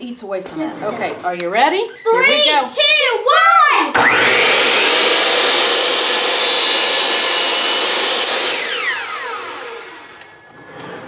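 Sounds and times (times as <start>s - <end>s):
power saw cutting wood: 3.9s - 11.0s
saw motor winding down: 3.9s - 11.0s.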